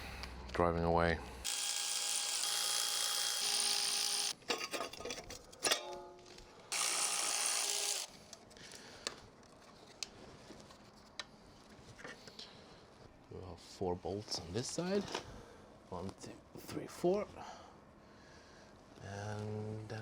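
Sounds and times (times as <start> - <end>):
cordless power tool running: 1.4 - 4.4, 6.7 - 8.1.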